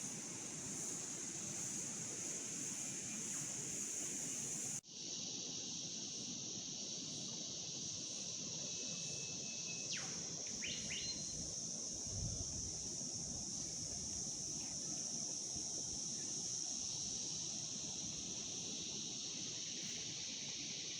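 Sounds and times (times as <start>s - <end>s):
high-pitched insect drone: 0.0s - 20.9s
bird whistling call: 9.4s - 11.3s.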